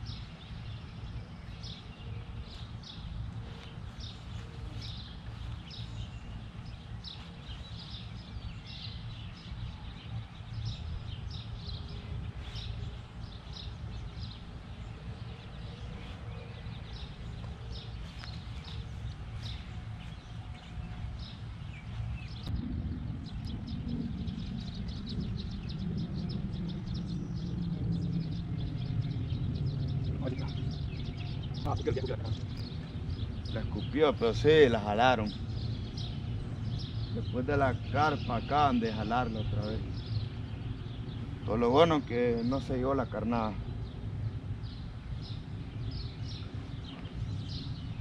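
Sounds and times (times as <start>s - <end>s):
small birds chirping: 0.0s - 48.0s
steady low rumble: 0.0s - 48.0s.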